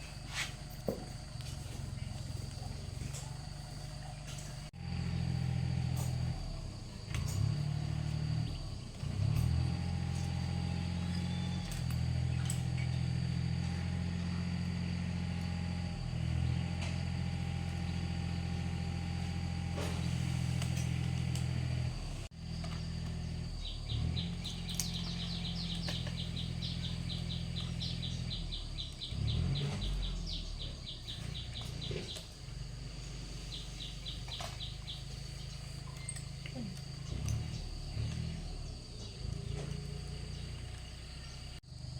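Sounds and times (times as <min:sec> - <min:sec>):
small engine humming: 0:00.0 - 0:41.9
bird chirping: 0:10.1 - 0:15.0, 0:22.5 - 0:41.6.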